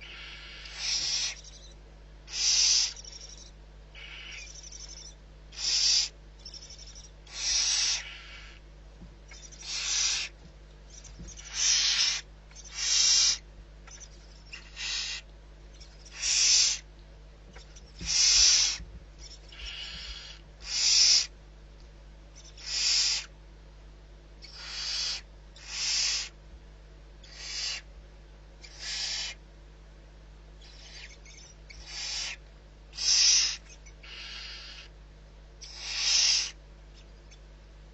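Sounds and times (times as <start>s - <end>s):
barn owl hissing calls: 0.0s - 8.6s, 9.3s - 16.9s, 17.6s - 21.3s, 22.4s - 23.4s, 24.4s - 26.4s, 27.2s - 27.9s, 28.6s - 29.4s, 30.6s - 35.0s, 35.6s - 37.4s.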